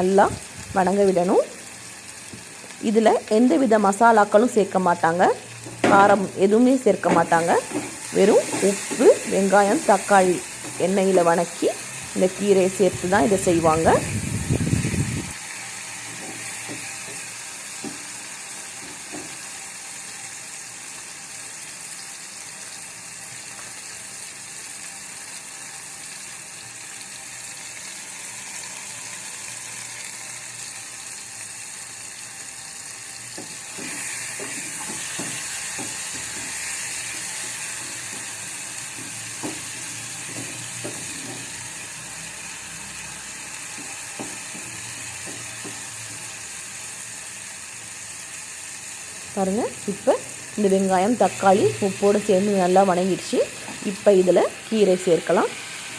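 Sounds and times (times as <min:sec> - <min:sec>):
vegetables sizzling in oil: 0:00.0 - 0:55.9.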